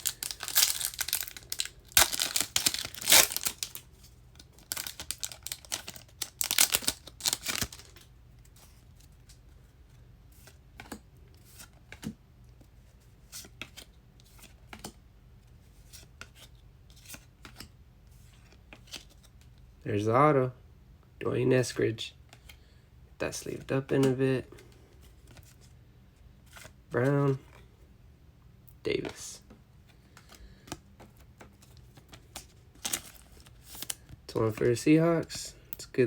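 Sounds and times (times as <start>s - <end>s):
card pack wrapper tearing: 0.0s - 3.8s, 4.4s - 8.0s, 32.8s - 34.0s
cards being handled: 0.0s - 9.5s, 29.9s - 34.8s.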